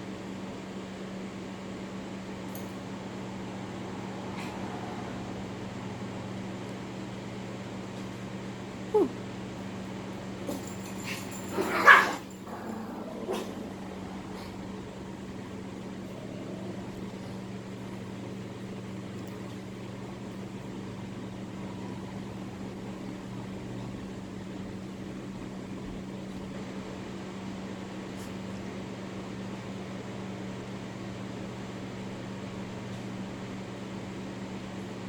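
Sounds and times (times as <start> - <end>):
electric fan whirring: 0.0 - 35.0
low motor hum: 1.7 - 11.6, 12.2 - 26.7.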